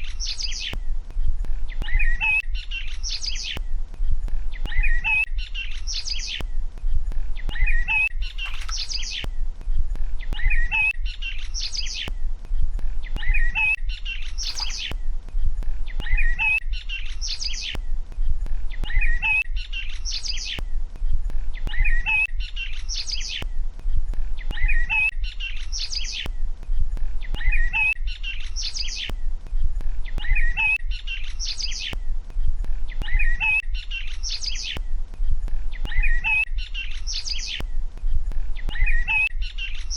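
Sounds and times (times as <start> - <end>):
small birds chirping: 7.4 - 9.3, 13.1 - 15.0, 32.9 - 39.9.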